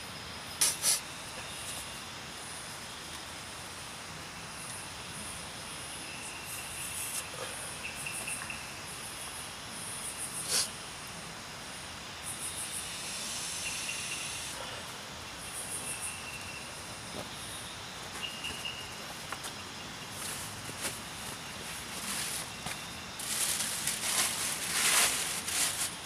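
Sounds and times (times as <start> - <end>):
crickets and insects calling: 0.0 - 26.0
steady hiss: 0.0 - 26.0.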